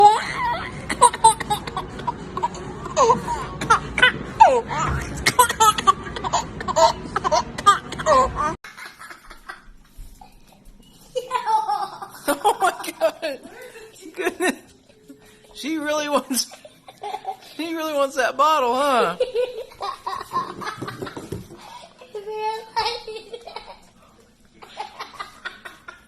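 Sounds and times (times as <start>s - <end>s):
baby giggling: 0.0s - 9.6s.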